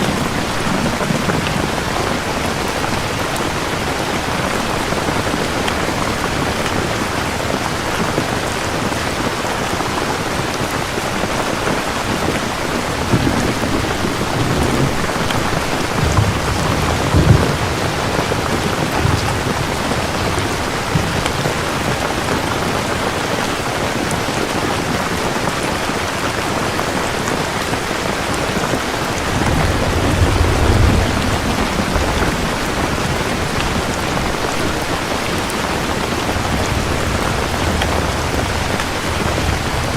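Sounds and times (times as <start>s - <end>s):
thunder rumbling: 0.0s - 24.6s, 27.3s - 39.9s
rain falling: 0.0s - 39.9s
sharp thunder clap: 13.0s - 22.2s, 29.2s - 39.9s.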